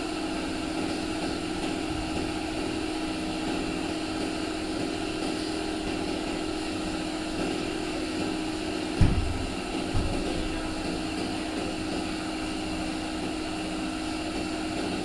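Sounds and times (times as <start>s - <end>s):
machine humming: 0.0s - 15.0s
low thumps: 9.0s - 11.2s.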